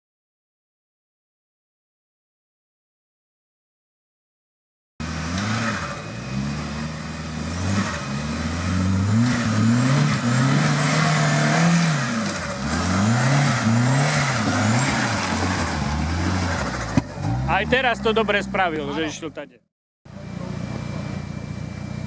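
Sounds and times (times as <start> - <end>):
off-road vehicle engine revving: 5.0 - 19.4, 20.1 - 22.0.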